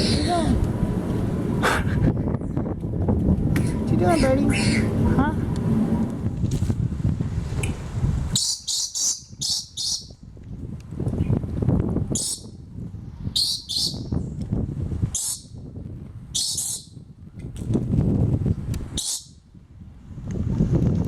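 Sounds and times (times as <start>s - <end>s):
small bird chirping: 8.4s - 10.2s, 13.4s - 14.2s.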